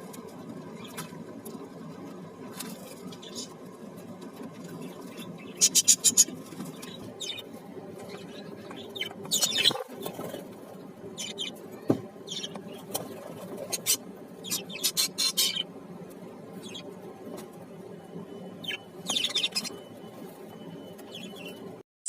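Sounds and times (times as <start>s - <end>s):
steady low hum: 0.0s - 21.8s
parrots chirping and squeaking: 4.8s - 10.5s, 11.2s - 15.7s, 16.6s - 16.9s, 18.5s - 20.3s, 21.0s - 21.6s.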